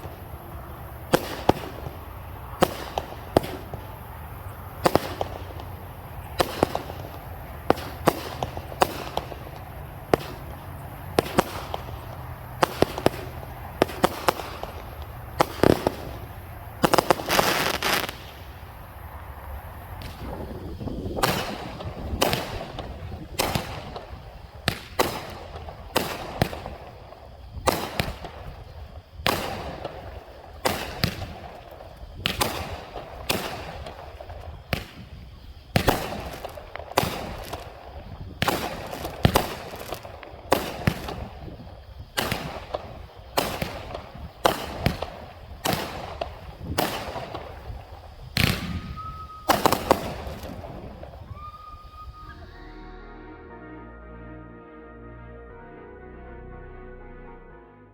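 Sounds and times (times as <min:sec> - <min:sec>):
fireworks shots with crackle: 0:00.0 - 0:52.4.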